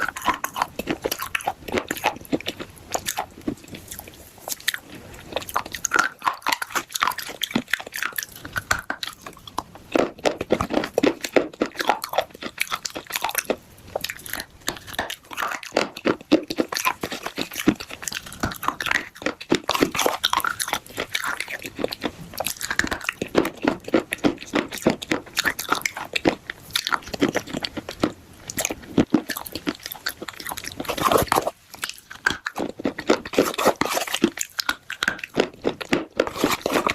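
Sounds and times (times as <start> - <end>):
crunching and chewing clay: 0.0 - 36.9.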